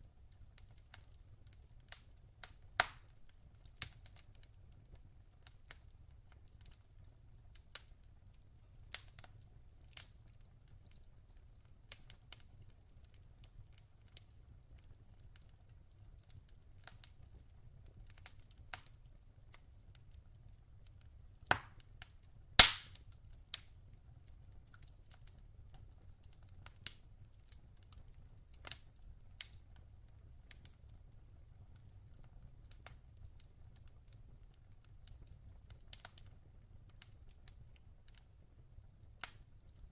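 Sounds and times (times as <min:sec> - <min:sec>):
log fire crackling: 0:00.0 - 0:39.9.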